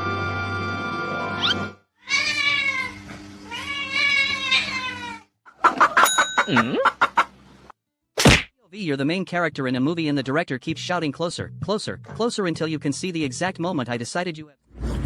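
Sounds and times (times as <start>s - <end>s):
cat meowing: 2.0s - 5.3s.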